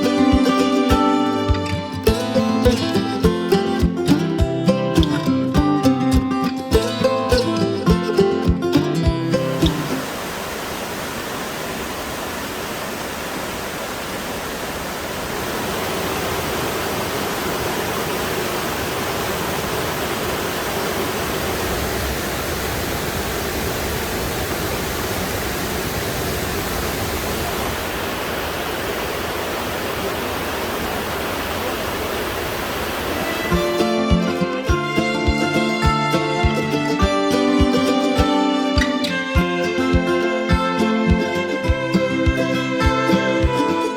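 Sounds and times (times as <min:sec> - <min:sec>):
guitar music: 0:00.0 - 0:10.0, 0:33.2 - 0:43.9
stream water rushing: 0:00.0 - 0:43.9.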